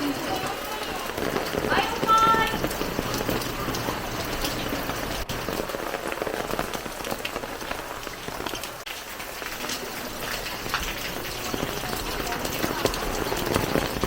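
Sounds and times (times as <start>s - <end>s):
heavy rain patter: 0.0s - 14.0s.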